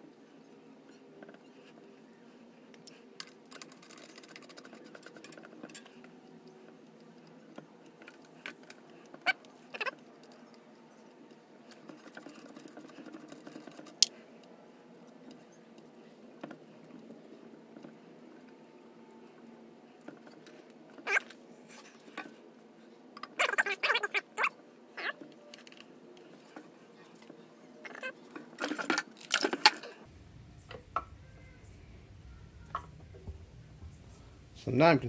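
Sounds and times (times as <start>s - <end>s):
clicks and rustling of small objects: 2.6s - 10.6s, 11.6s - 18.6s, 25.0s - 30.1s.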